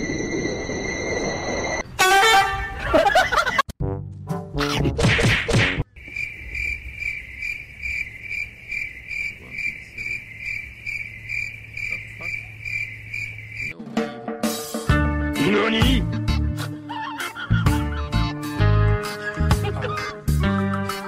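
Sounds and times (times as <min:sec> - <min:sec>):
insect chirping: 0:05.9 - 0:13.8.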